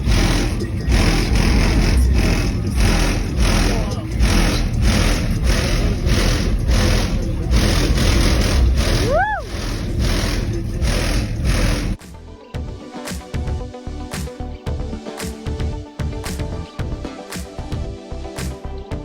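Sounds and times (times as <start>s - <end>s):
loud vehicle engine pulsing: 0.0s - 12.1s
music: 0.0s - 19.0s
rising and falling whistle: 9.0s - 9.8s.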